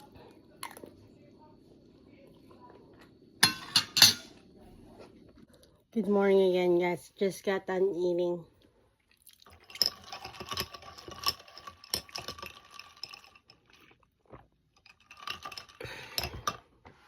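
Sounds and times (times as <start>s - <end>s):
small hard objects clicking and rattling: 9.6s - 13.8s, 14.8s - 16.6s.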